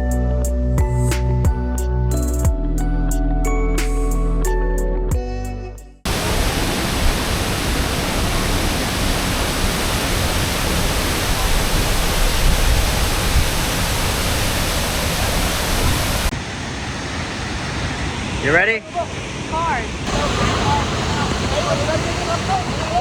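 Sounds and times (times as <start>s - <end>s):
background music: 0.0s - 6.0s
waterfall rushing: 6.1s - 23.0s.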